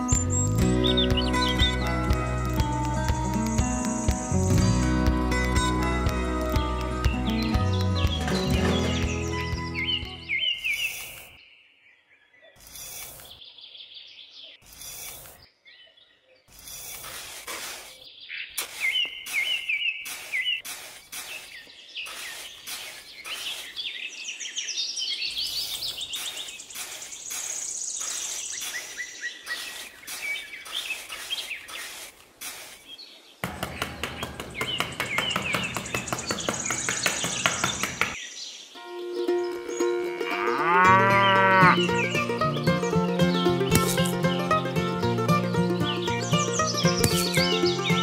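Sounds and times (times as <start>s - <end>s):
birds chirping and calling: 0.0s - 4.7s, 7.0s - 48.0s
short clicks or scrapes: 12.6s - 13.4s, 14.6s - 15.5s, 16.5s - 18.0s.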